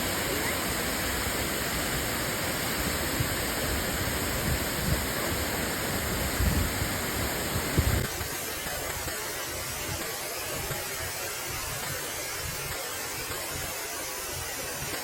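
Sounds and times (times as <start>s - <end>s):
waterfall rushing: 0.0s - 15.0s
microphone bumps and rumble: 6.3s - 8.2s.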